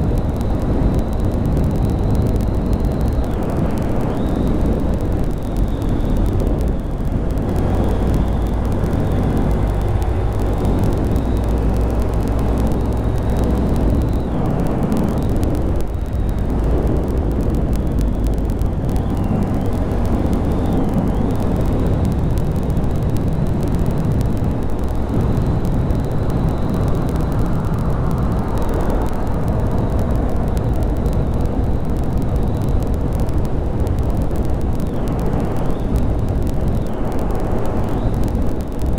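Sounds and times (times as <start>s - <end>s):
motorcycle engine running: 0.0s - 30.2s
rush of noise: 0.0s - 38.9s.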